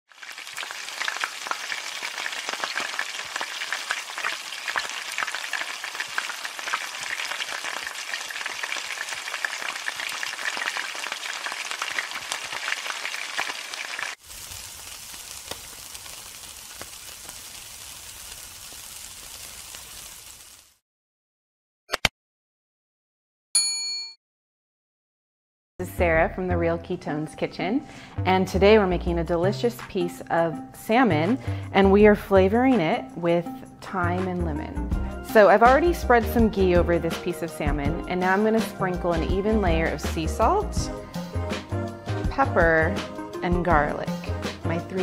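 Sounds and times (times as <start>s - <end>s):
hot oil sizzling in a wok: 0.1s - 20.8s.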